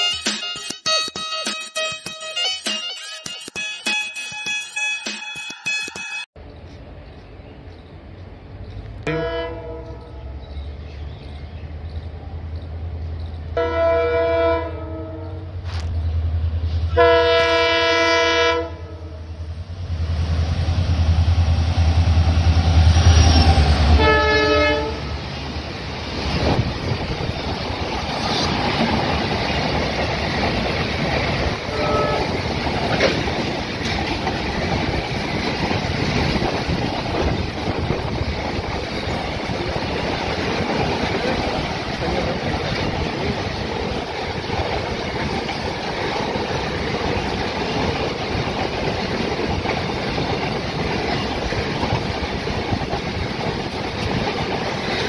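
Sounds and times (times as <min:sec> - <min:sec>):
diesel locomotive engine rumbling: 0:06.4 - 0:55.0
locomotive horn blasts: 0:09.1 - 0:10.2, 0:13.6 - 0:15.5, 0:16.9 - 0:19.3, 0:23.9 - 0:25.1, 0:31.7 - 0:32.4.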